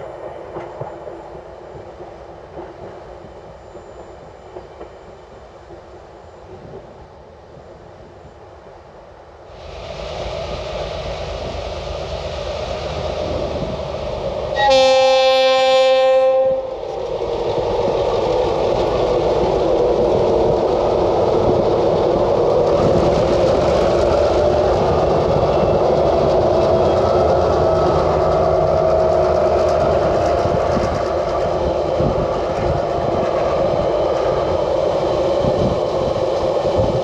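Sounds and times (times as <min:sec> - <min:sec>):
locomotive and wagons rumbling on rails: 0:00.0 - 0:37.0
train horn blast: 0:14.6 - 0:16.8.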